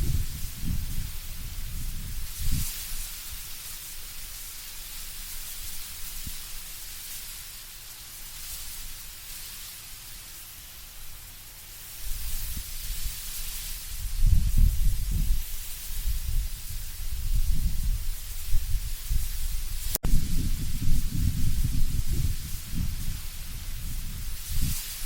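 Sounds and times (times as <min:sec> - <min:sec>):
low gusting wind rumble: 0:00.0 - 0:02.8, 0:13.9 - 0:25.0
leaves rustling in wind: 0:00.0 - 0:25.0.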